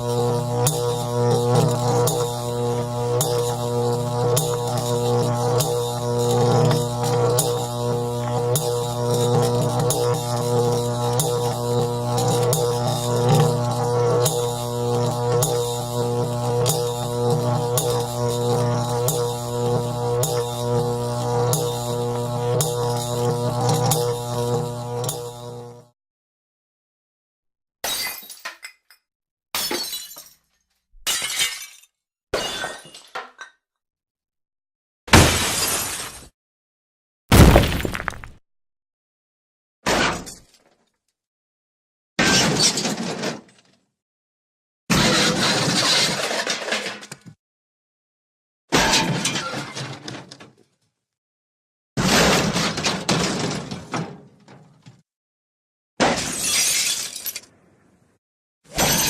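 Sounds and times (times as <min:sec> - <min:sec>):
low motor drone: 0:00.0 - 0:25.9
glass shattering: 0:27.9 - 0:29.0, 0:29.6 - 0:30.4, 0:31.1 - 0:33.2, 0:56.1 - 0:57.5.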